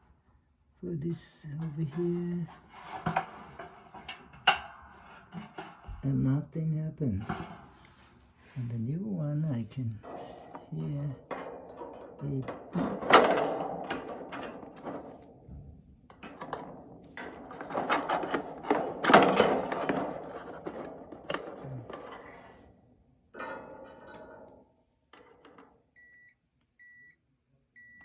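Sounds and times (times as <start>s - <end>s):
clatter and rustling of parts: 1.4s - 6.0s, 7.2s - 8.6s, 9.6s - 25.8s
multimeter continuity beeps: 26.0s - 27.2s, 27.8s - 28.0s.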